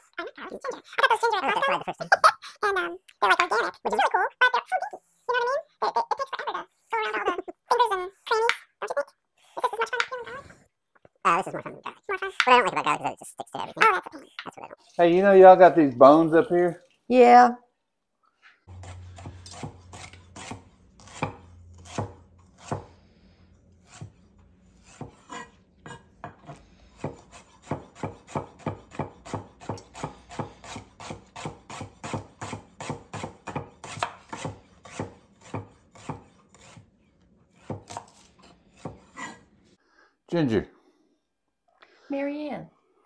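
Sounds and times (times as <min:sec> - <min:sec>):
knife chopping on wooden board: 0:18.7 - 0:22.9, 0:24.8 - 0:36.8, 0:37.5 - 0:39.4.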